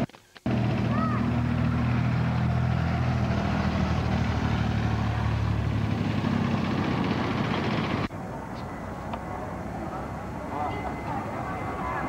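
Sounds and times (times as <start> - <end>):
jet engines droning: 0.5 - 12.0.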